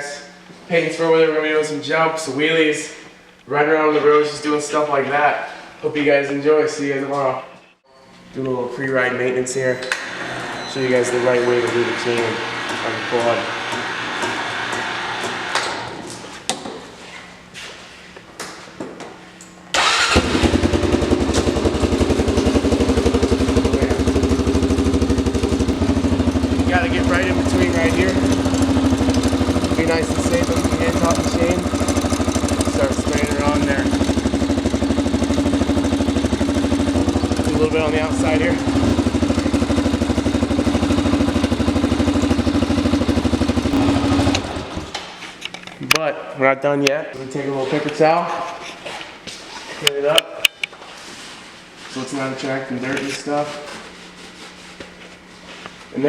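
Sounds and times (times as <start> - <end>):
small vehicle engine idling: 19.8 - 44.9.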